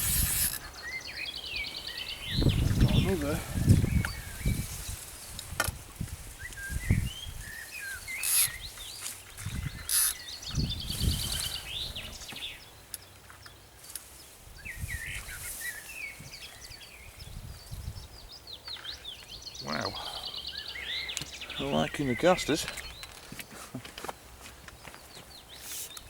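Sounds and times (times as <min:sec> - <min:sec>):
small birds singing: 0:00.0 - 0:26.0.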